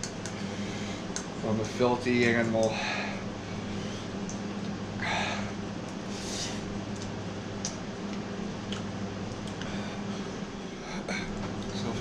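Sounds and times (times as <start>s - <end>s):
steady low hum: 0.0s - 12.0s
man breathing hard and sniffing: 0.3s - 1.1s, 5.0s - 6.7s.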